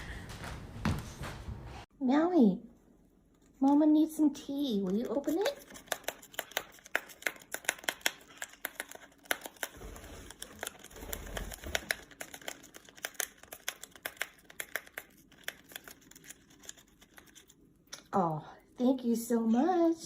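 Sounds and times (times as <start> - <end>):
cat clawing a packet: 4.8 - 17.7
packet crinkling: 5.0 - 17.7.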